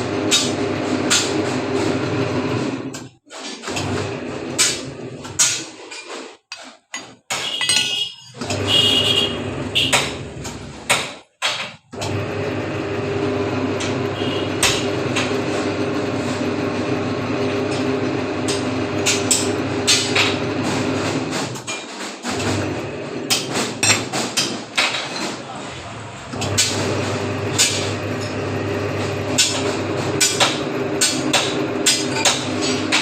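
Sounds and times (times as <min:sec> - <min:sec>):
metal knocks and clinks: 0:05.9 - 0:08.4
bending machine motor humming: 0:07.4 - 0:10.8, 0:11.9 - 0:21.6, 0:25.5 - 0:33.0.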